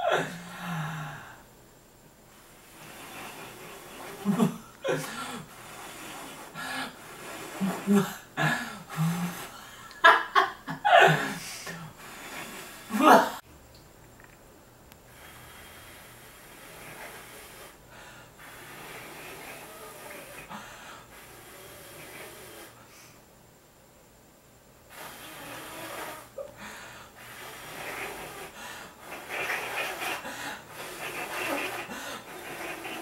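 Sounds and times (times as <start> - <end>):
person blowing puffs of air: 2.3 - 10.0, 11.0 - 13.4, 15.1 - 23.2, 24.9 - 33.0
snorting breath: 2.4 - 9.9, 15.1 - 23.2, 24.9 - 33.0.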